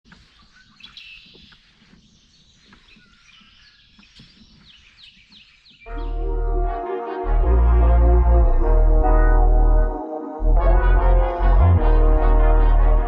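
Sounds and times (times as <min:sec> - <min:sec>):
birds chirping: 0:00.1 - 0:06.7
high downward-sweeping bird notes: 0:05.9 - 0:13.0
loud music: 0:05.9 - 0:13.0.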